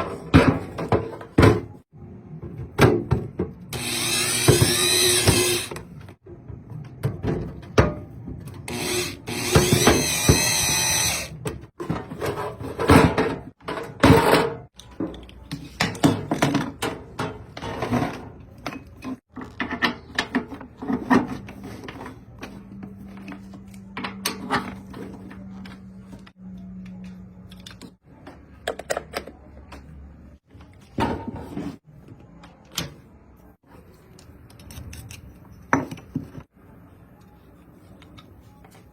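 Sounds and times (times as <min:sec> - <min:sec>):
power tool running: 0:03.8 - 0:05.7, 0:08.7 - 0:11.3
tools and parts clicking: 0:26.2 - 0:28.0, 0:34.1 - 0:36.1.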